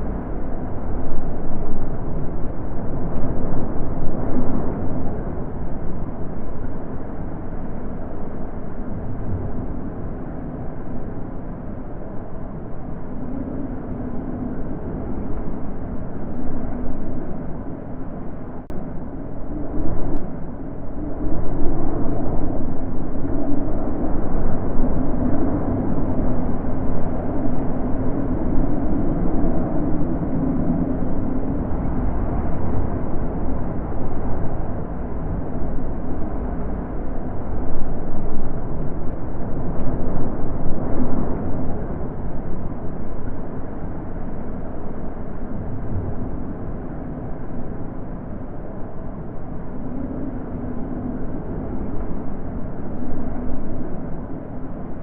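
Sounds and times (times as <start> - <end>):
gusty wind: 0.0 - 55.0.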